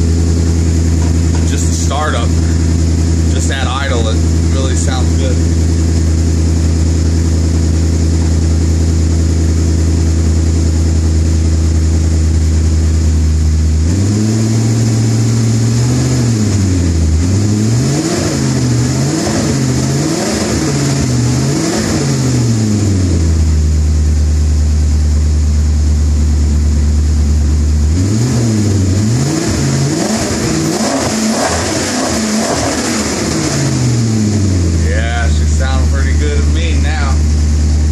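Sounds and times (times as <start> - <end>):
car engine idling and revving: 0.0 - 37.9.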